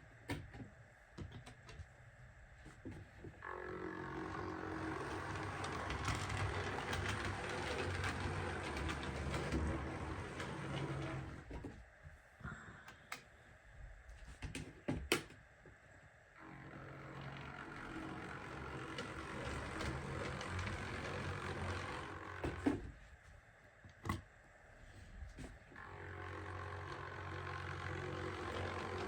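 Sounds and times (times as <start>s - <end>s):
model locomotive running on track: 4.2s - 11.3s.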